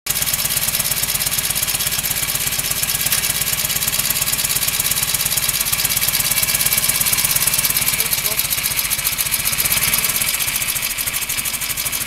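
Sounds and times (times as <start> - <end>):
motorcycle engine idling: 0.1 - 12.0.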